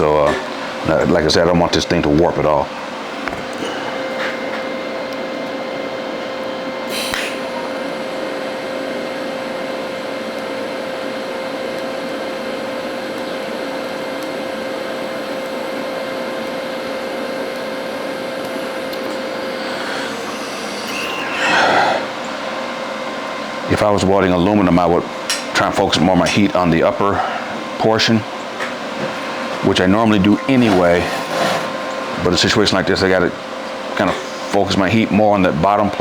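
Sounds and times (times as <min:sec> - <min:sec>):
welding arc hissing and whining: 0:04.8 - 0:36.0.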